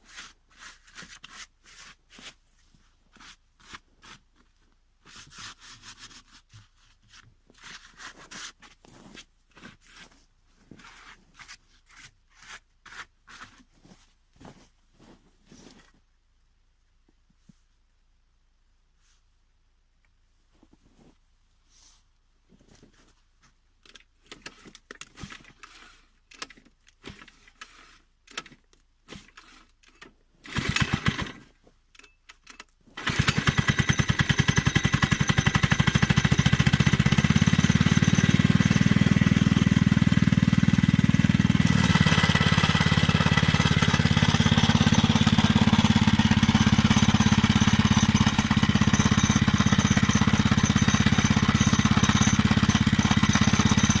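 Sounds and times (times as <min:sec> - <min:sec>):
minibike engine starting and running: 0:30.5 - 0:31.4, 0:33.0 - 0:54.0
engine clicks and knocks: 0:41.8 - 0:54.0.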